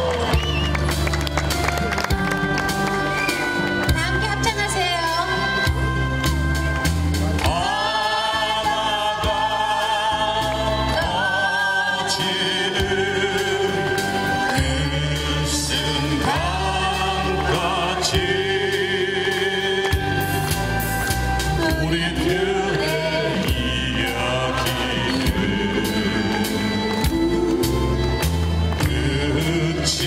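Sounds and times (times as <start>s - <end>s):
crowd singing: 0.0s - 1.1s, 7.2s - 30.0s
musical accompaniment: 0.0s - 30.0s.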